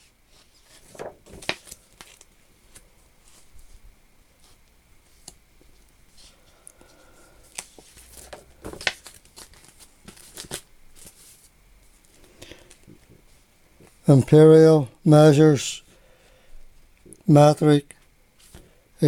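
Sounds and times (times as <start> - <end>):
paper rustling: 0.3 - 3.8, 7.5 - 13.4.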